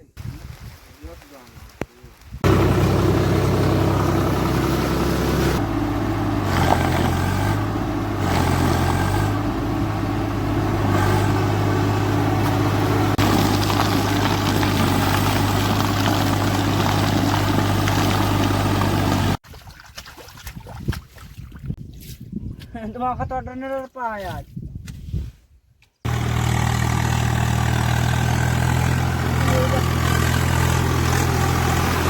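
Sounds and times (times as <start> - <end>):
tractor diesel engine running: 2.4 - 19.4, 26.1 - 32.0.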